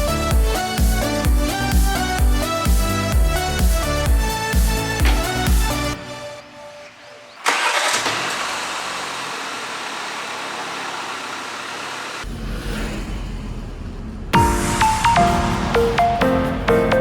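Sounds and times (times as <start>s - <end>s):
background music: 0.0s - 7.4s, 14.4s - 17.0s.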